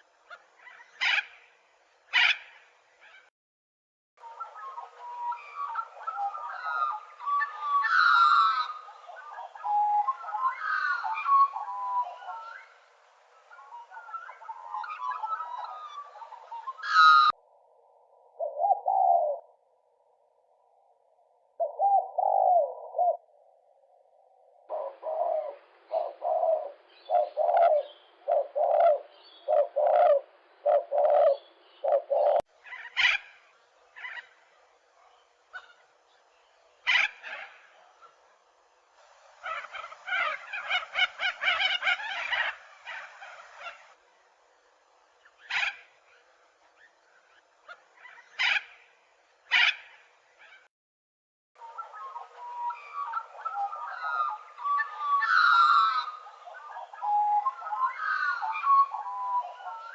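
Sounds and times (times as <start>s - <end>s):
harsh bird calls: 35.4s - 38.3s, 39.3s - 44.0s, 51.6s - 59.9s.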